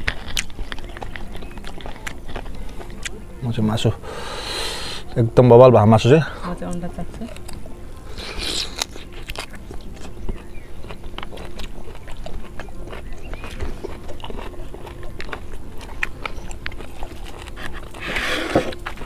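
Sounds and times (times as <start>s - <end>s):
chewing and lip-smacking: 0.0s - 5.2s, 6.6s - 19.0s
wet mouth clicks: 8.2s - 10.4s.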